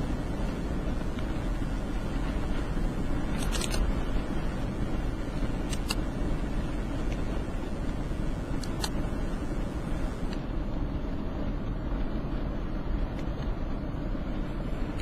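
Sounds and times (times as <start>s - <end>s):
road and engine noise in car: 0.0s - 15.0s
faint clicks: 7.0s - 9.1s.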